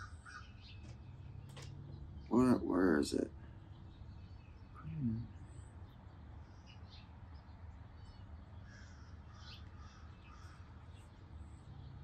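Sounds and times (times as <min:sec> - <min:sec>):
faint bird calls: 0:00.0 - 0:03.7, 0:04.4 - 0:06.0, 0:08.1 - 0:11.2.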